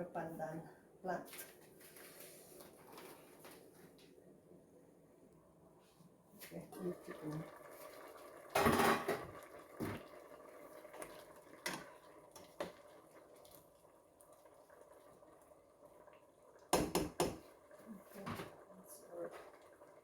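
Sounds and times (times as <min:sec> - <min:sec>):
cookware and utensils clattering: 0:08.5 - 0:10.0.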